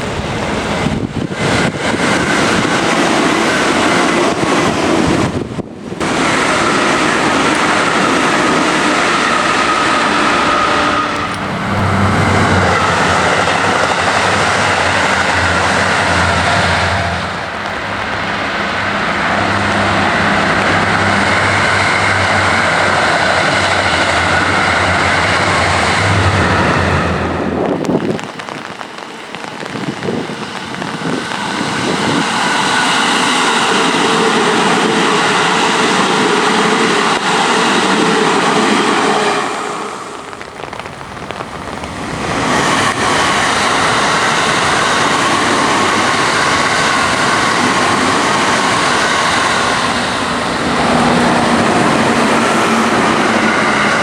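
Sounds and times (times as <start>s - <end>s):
train running past: 0.0s - 54.0s
rain: 8.8s - 33.6s, 36.5s - 54.0s.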